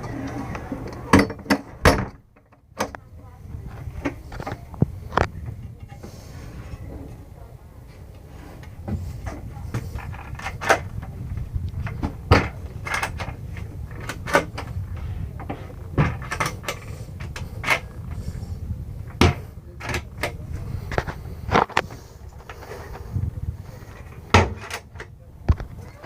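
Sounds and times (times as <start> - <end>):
steady low rumble: 0.0 - 26.0
cabinet doors clicking and knocking: 1.1 - 3.0, 11.8 - 14.7, 15.4 - 17.9, 19.1 - 20.4, 24.3 - 25.0.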